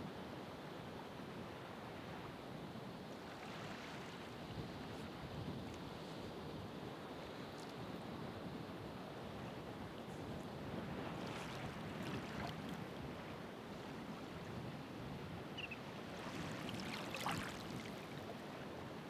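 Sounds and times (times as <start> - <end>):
waves breaking: 10.9 - 12.8, 15.6 - 18.5.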